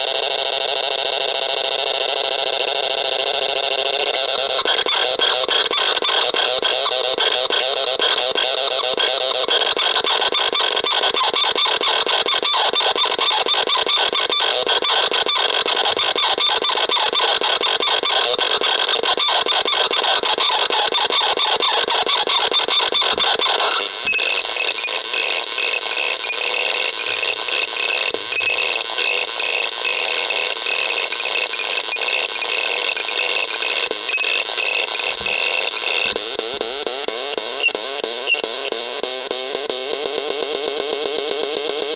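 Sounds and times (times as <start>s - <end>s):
high pulsing beep tone: 21.5s - 29.3s.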